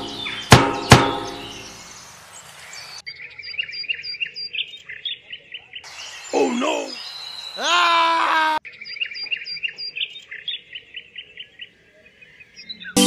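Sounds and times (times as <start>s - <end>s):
sharp ringing knocks: 0.0s - 1.6s
small birds chirping rapidly: 0.0s - 13.0s.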